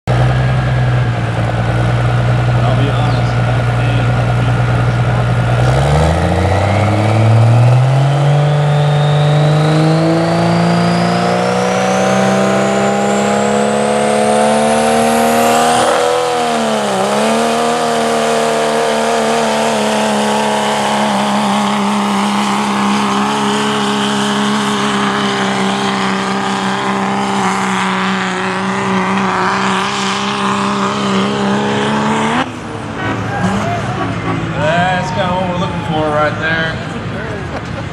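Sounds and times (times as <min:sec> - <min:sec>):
diesel truck engine revving: 0:00.0 - 0:37.9
high turbo whistle: 0:05.8 - 0:13.1, 0:32.6 - 0:36.3.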